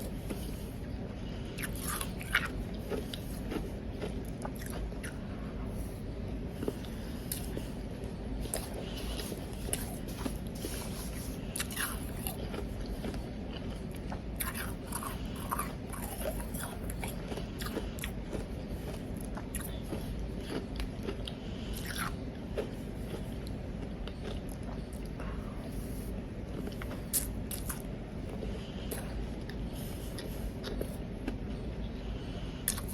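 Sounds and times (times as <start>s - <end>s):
ice being chewed: 0.0s - 31.6s.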